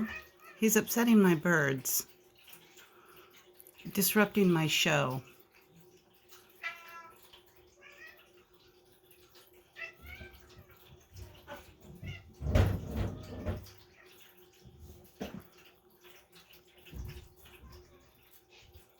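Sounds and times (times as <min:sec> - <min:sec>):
cat meowing: 0:09.8 - 0:10.8.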